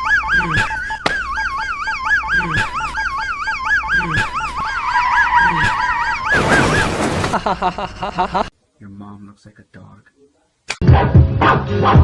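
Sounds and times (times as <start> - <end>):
siren warbling: 1.2 - 6.9.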